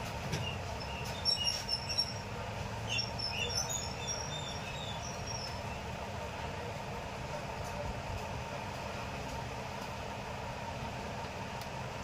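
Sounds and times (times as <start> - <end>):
birds chirping: 2.9 - 5.8.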